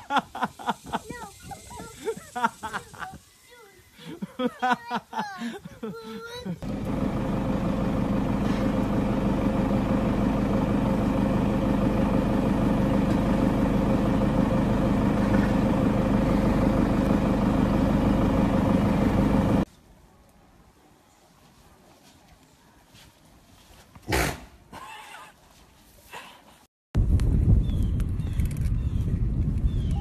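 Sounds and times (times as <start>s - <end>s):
vehicle engine idling: 6.6s - 19.7s.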